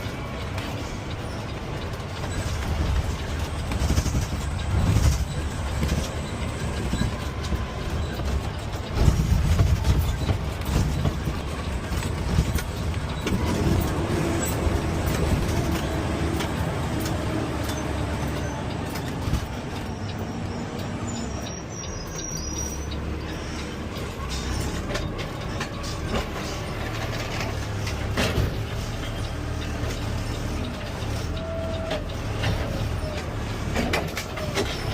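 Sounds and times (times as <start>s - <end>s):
truck engine rumble: 0.0s - 34.9s.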